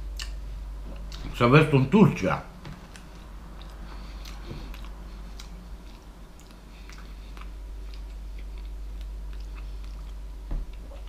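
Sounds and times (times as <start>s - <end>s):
man chewing: 0.0s - 1.3s, 2.8s - 11.0s
steady low hum: 0.0s - 11.0s.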